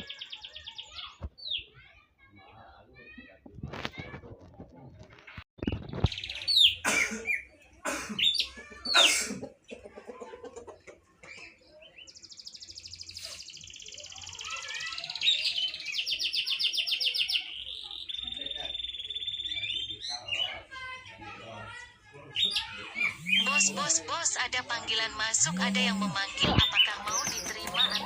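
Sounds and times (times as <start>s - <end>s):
bird buzzing trill: 23.1s - 23.9s.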